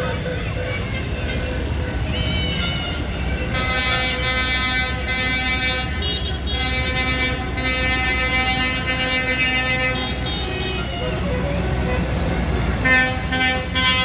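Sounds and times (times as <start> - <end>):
engine rumble: 0.0 - 14.0
vehicle horn blasts: 3.5 - 10.9, 12.8 - 14.0.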